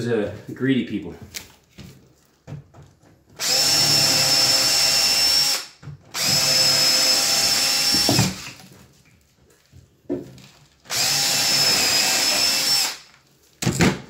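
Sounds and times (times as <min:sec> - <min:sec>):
power drill running: 0:03.4 - 0:08.6, 0:10.9 - 0:13.1.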